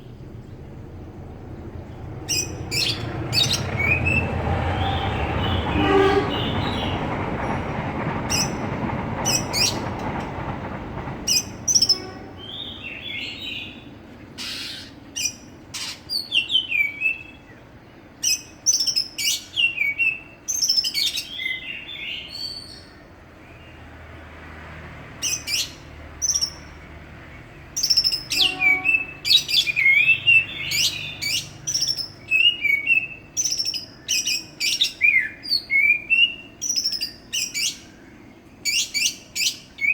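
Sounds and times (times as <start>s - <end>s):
low rumbling noise: 0.0s - 15.8s
bird whistling and chattering: 2.3s - 4.4s.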